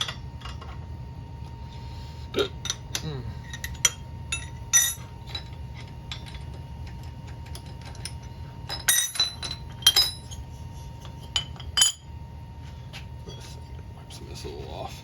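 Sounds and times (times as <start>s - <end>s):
steady low hum: 0.0s - 15.0s
metal tools clinking: 2.6s - 12.0s.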